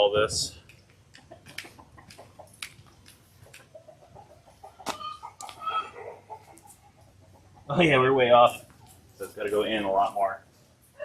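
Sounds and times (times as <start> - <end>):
chickens clucking: 0.4 - 11.0
short chicken calls: 3.4 - 7.7.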